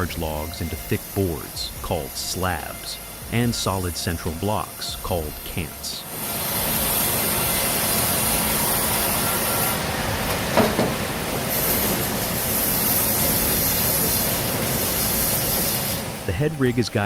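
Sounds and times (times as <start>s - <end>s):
sawmill machinery running: 0.0s - 17.0s
sharp knock: 10.5s - 11.0s.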